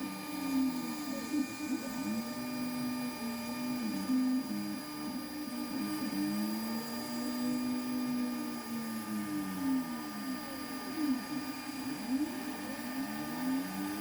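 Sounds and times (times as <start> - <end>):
router spindle whine: 0.0 - 14.0.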